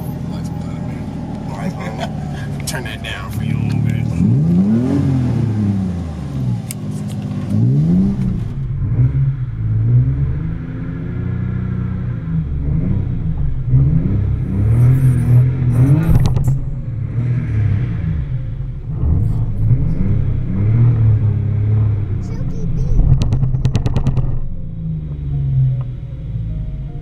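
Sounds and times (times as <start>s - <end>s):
car engine revving hard: 1.0s - 6.6s, 7.4s - 22.2s
sharp knock: 23.0s - 24.4s.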